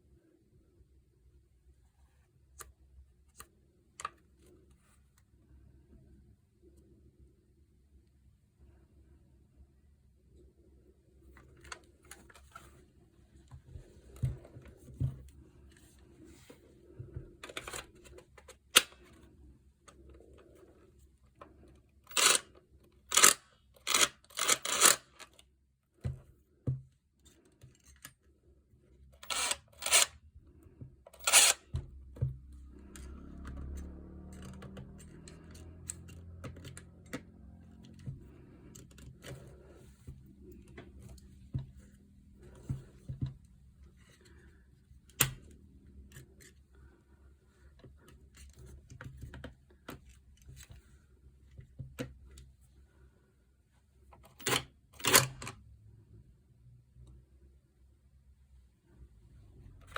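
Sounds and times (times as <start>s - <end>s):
tools clicking and knocking: 22.1s - 25.4s, 29.2s - 30.2s, 31.1s - 32.3s.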